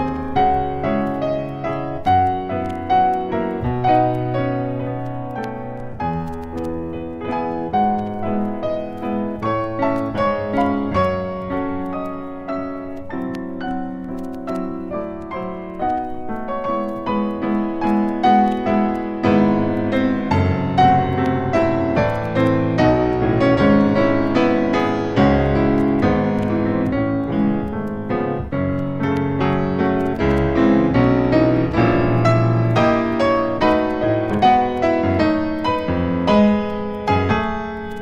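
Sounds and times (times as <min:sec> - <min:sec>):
gentle piano music: 0:00.0 - 0:38.0.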